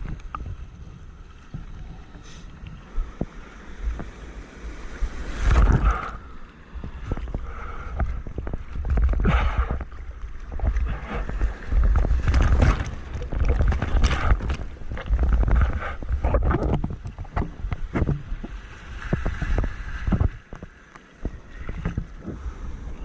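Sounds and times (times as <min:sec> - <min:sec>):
ocean water rushing and splashing: 0:00.0 - 0:23.0
wind buffeting microphone: 0:04.8 - 0:23.0.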